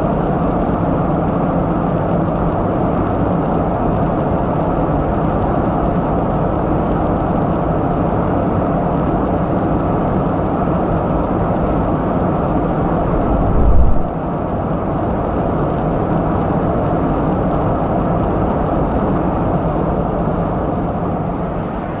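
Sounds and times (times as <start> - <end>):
car engine rumble: 13.0 - 14.2.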